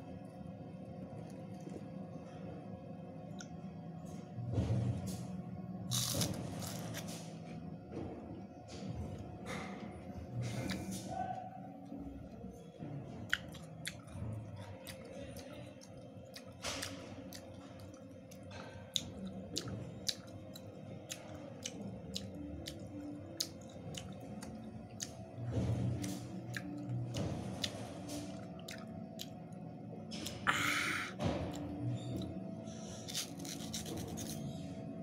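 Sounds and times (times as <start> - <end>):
chewing with wet crunches: 13.3 - 29.5.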